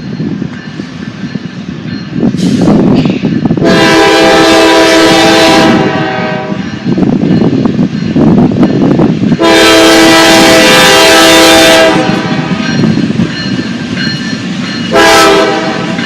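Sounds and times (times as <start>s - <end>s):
train rumbling on rails: 0.0s - 16.0s
locomotive air horn blast: 3.6s - 6.6s, 9.4s - 12.6s, 14.9s - 16.0s.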